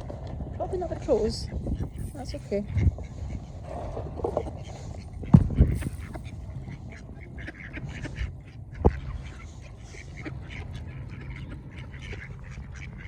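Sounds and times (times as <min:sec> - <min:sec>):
low rumble: 0:00.0 - 0:09.8
ducks quacking: 0:00.5 - 0:13.0
sharp thump: 0:05.3 - 0:06.0.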